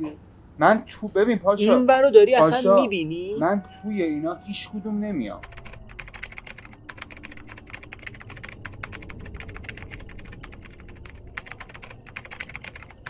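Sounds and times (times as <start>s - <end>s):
low steady rumble: 0.0s - 13.0s
keyboard typing clicks: 5.4s - 13.0s.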